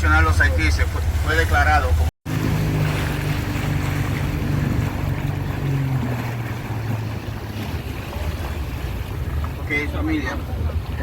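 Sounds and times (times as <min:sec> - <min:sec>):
boat engine running: 0:00.0 - 0:11.0
rushing water: 0:00.0 - 0:11.0
wind: 0:00.0 - 0:11.0.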